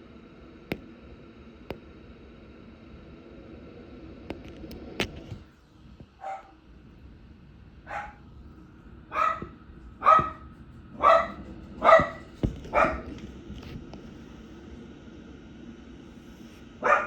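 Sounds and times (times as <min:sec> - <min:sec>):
dog barking: 0:06.2 - 0:06.6, 0:07.8 - 0:08.3, 0:09.1 - 0:13.2, 0:16.8 - 0:17.0.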